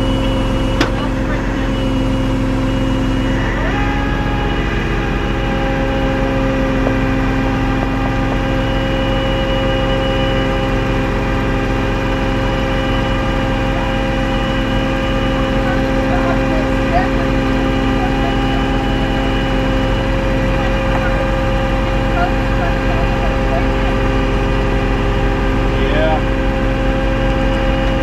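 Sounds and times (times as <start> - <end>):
steady whine: 0.0 - 28.0
truck engine idling: 0.0 - 28.0.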